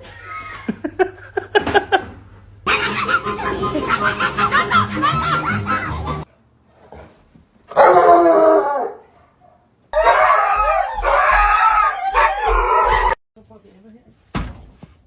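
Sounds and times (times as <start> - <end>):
dog howling: 7.7 - 9.0, 10.0 - 13.2.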